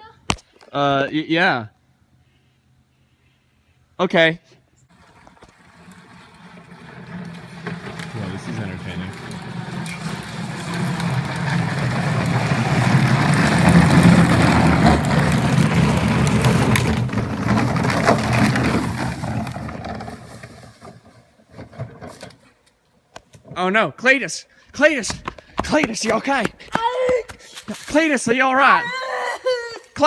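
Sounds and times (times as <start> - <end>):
plastic wheels rumbling and rattling: 4.9 - 22.6.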